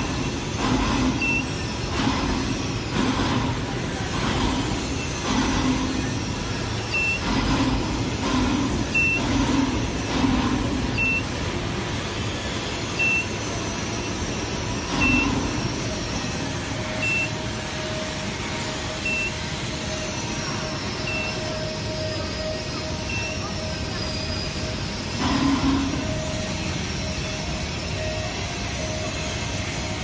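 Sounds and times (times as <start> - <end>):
machinery din: 0.0 - 30.0
high electronic beep: 1.0 - 1.6, 6.8 - 7.3, 8.8 - 9.5, 10.8 - 11.4, 12.9 - 16.0, 16.9 - 17.4, 19.0 - 19.5, 20.6 - 29.4.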